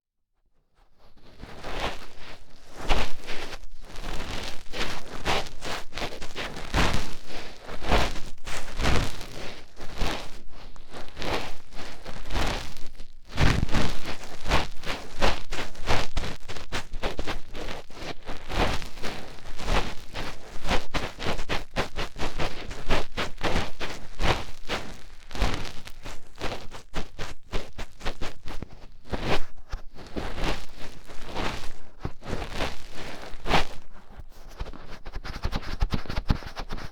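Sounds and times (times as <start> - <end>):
fingertip scratching in ear: 33.6 - 36.9.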